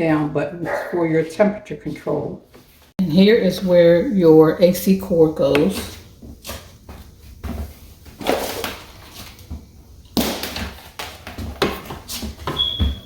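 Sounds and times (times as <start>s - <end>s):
knocks and rustling scrapes: 5.7s - 9.8s, 10.6s - 13.0s.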